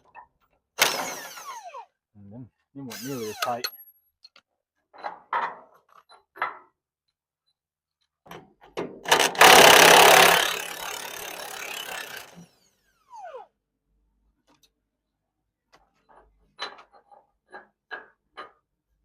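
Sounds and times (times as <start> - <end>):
power wrench running: 0.8 - 1.9, 2.9 - 3.7, 9.1 - 13.5.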